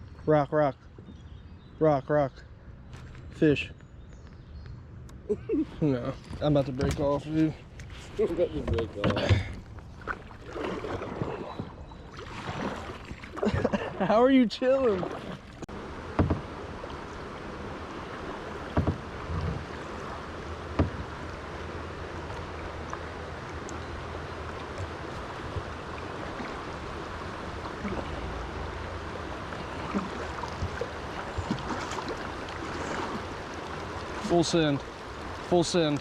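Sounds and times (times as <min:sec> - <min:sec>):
river water rushing: 0:12.1 - 0:13.5, 0:14.5 - 0:36.0
sharp knocks on kayak: 0:16.1 - 0:16.5, 0:18.7 - 0:19.7, 0:20.7 - 0:21.1.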